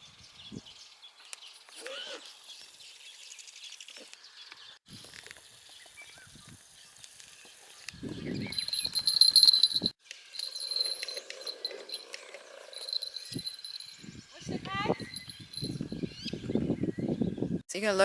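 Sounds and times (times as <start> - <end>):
high insect trill: 8.5 - 14.1.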